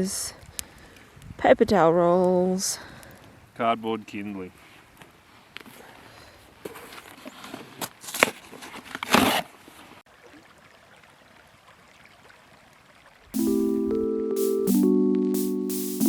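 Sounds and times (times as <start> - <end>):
cardboard rustling and breaking: 7.9 - 9.5
faint steady hiss: 13.4 - 16.0.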